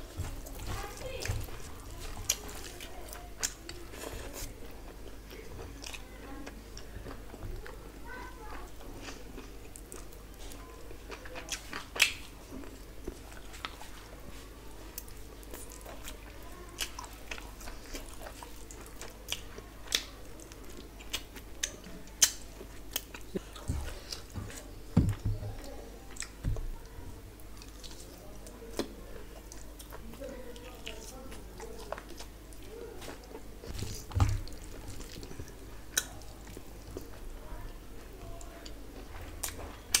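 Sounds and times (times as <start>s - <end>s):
person chewing food: 0.0s - 40.0s
soft low thumps: 23.6s - 25.7s.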